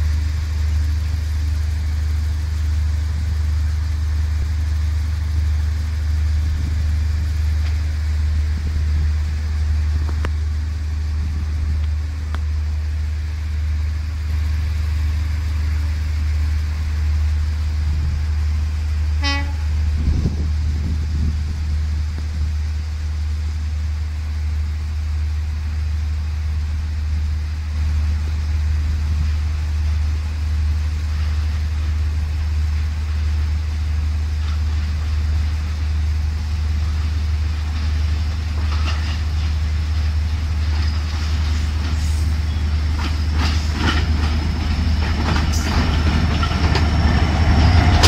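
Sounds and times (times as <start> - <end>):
diesel train engine idling: 0.0 - 48.0
train horn toot: 19.2 - 20.0.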